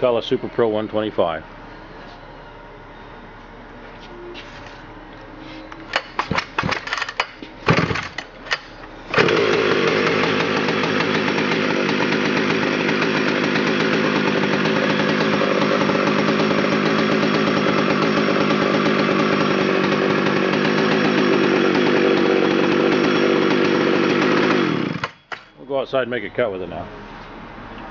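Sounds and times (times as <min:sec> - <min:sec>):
sharp clicks and knocks: 0:05.9 - 0:08.9
chainsaw engine running loud: 0:09.1 - 0:25.2.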